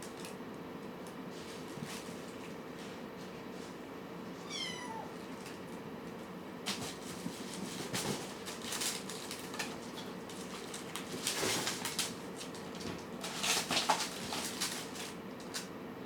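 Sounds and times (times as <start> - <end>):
kitten meowing: 4.4 - 5.2.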